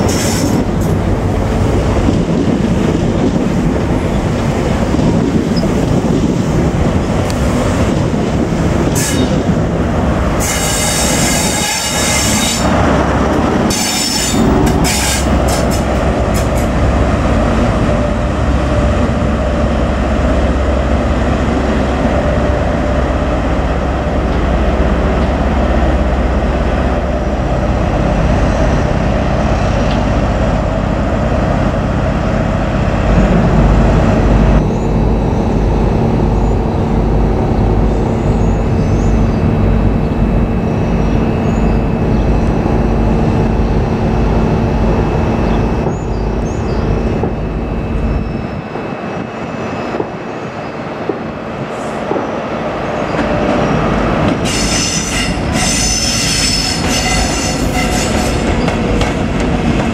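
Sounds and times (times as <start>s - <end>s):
train rumbling: 0.0s - 59.9s
train wheels squealing: 13.7s - 15.3s, 54.4s - 58.8s.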